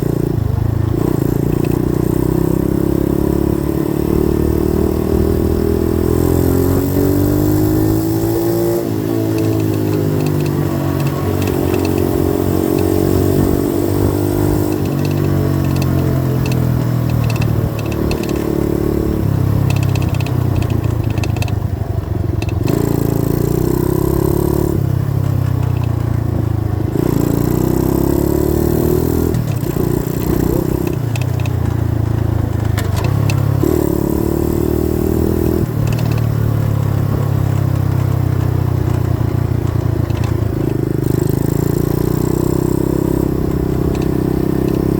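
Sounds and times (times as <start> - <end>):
dirt bike engine revving: 0.0 - 21.5, 22.4 - 26.2, 26.8 - 44.9.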